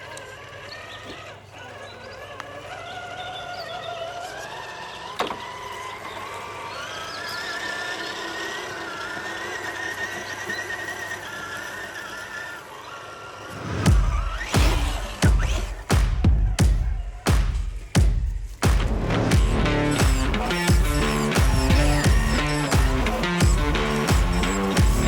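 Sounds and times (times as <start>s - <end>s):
electric motor whining: 0.0s - 15.9s, 18.7s - 25.0s
sharp knock: 13.7s - 25.0s.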